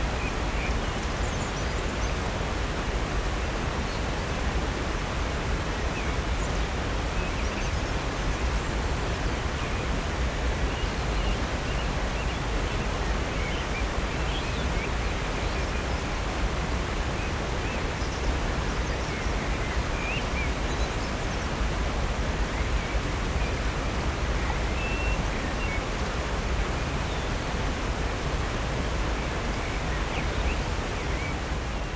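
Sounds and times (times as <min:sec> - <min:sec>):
waterfall rushing: 0:00.0 - 0:31.9
faint bird chirps: 0:24.3 - 0:25.9.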